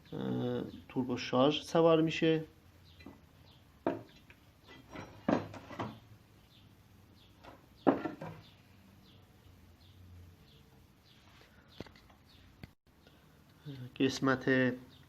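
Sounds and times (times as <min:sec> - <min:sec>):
metal parts knocking and clunking: 0:03.8 - 0:06.0.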